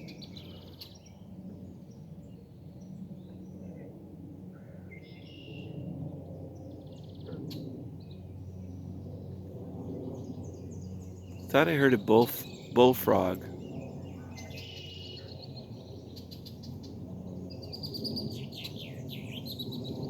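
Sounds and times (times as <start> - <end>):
low background noise: 11.5 - 13.5.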